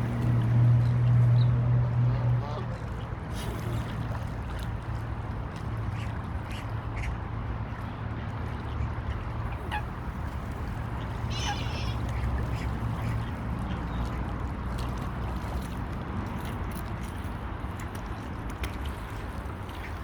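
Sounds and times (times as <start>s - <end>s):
ducks and geese calling: 11.3s - 13.2s.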